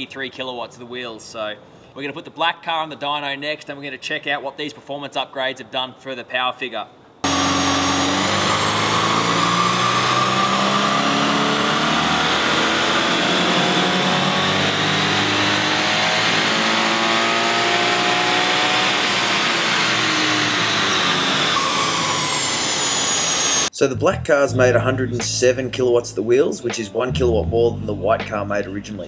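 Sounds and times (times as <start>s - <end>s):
car engine at full throttle: 7.2s - 23.7s.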